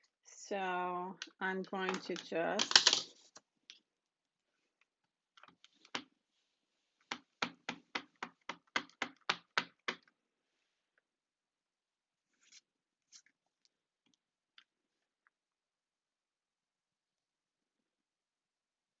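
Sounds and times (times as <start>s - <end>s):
rubber stamp tapping on ink pad: 7.1s - 10.1s.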